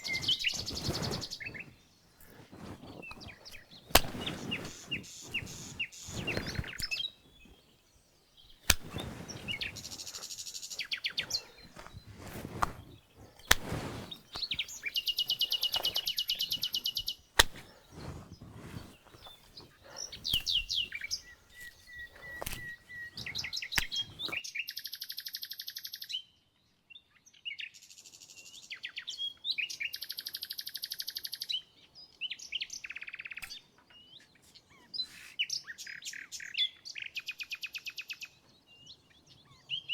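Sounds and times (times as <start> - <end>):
songbirds chirping and trilling: 0.0 - 24.4, 30.8 - 39.9.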